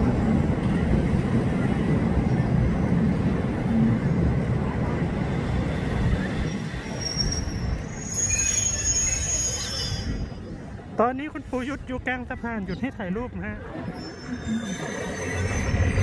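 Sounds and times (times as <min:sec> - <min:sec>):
train rumbling over a bridge: 0:00.0 - 0:16.0
wheels squealing: 0:05.3 - 0:10.6, 0:13.6 - 0:16.0.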